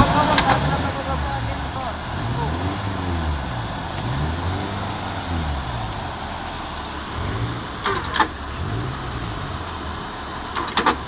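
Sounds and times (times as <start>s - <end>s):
engine revving: 0.0s - 11.0s.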